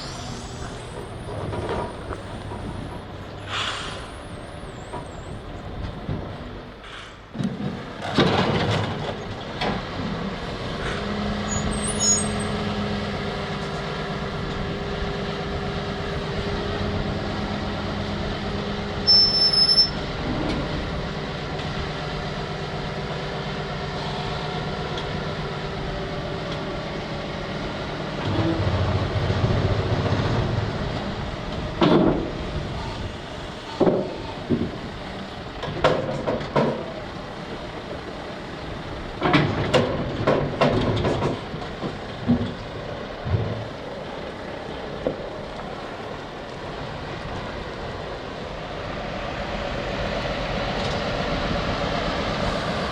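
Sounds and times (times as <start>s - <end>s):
diesel engine running: 0.0s - 52.9s
high beep: 19.1s - 20.0s.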